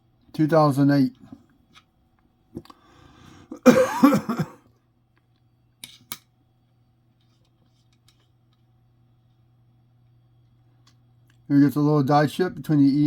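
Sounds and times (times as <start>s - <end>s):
faint low hum: 0.0s - 13.0s
man coughing and clearing throat: 3.5s - 4.6s.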